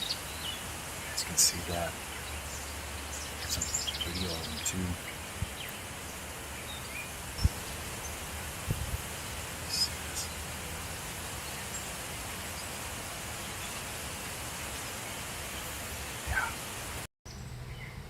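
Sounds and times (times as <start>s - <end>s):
wind noise: 2.8s - 11.2s
sharp low thump: 8.7s - 9.0s.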